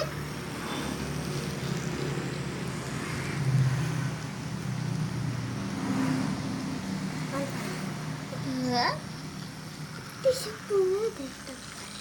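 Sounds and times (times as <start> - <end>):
toy train motor hum: 10.0 - 12.0.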